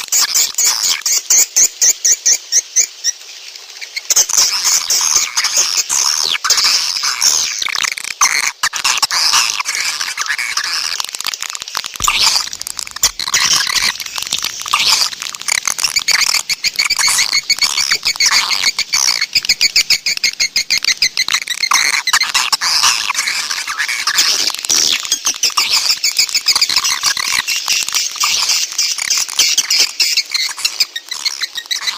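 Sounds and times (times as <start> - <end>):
swiftlets twittering: 11.7 - 31.9.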